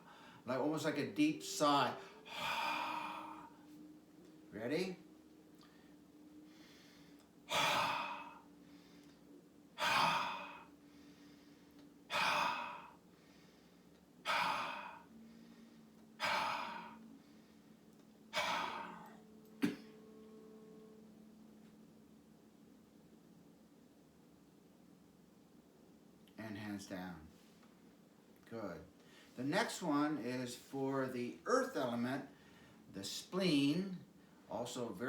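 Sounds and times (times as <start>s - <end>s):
forceful breathy exhalations: 2.0s - 3.7s, 6.5s - 9.2s, 9.8s - 19.2s.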